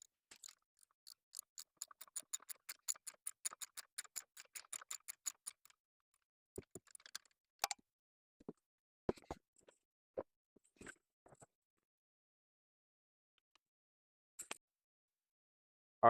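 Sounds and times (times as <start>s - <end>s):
socket ratchet clicking: 0.0s - 5.7s.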